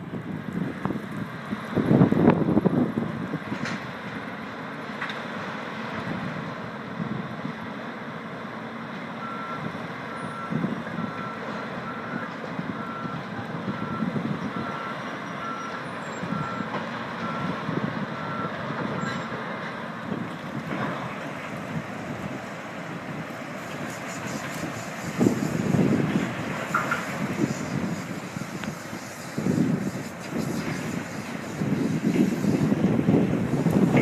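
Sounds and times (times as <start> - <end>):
wind on microphone: 0.0 - 3.7, 12.6 - 14.8, 20.0 - 34.0
diesel engines rumbling: 0.0 - 34.0.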